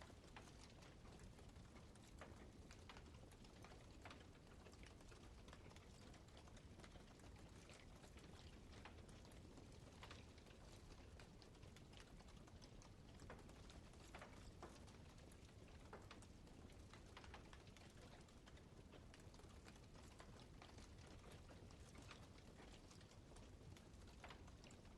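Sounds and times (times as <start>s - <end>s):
campfire crackling and popping: 7.2s - 24.9s.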